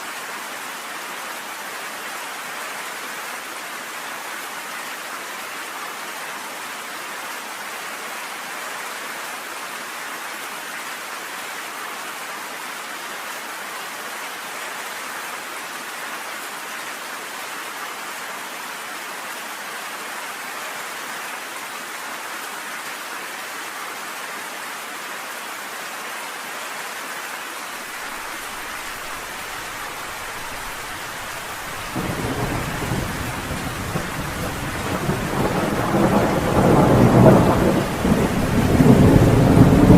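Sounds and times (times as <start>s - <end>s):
rain pelting down: 27.8s - 39.9s
deep thunder rumble: 30.6s - 39.9s.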